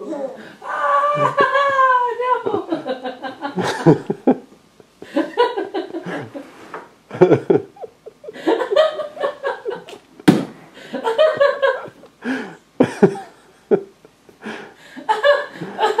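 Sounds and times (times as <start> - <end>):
person laughing: 1.0 - 6.4, 7.1 - 10.0, 10.8 - 13.9
sharp knock: 10.3 - 10.6.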